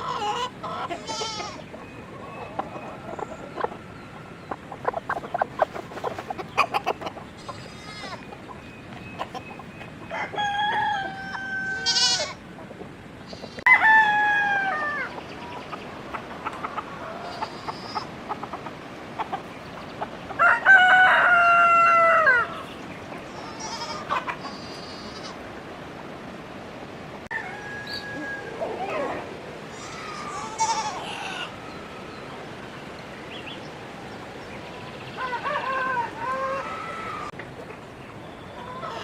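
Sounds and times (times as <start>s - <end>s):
roosters crowing: 0.0s - 8.6s, 9.2s - 12.4s, 13.3s - 18.4s, 20.2s - 22.7s, 27.2s - 32.8s, 34.8s - 37.4s, 38.5s - 39.0s
faint clucking: 0.0s - 10.0s.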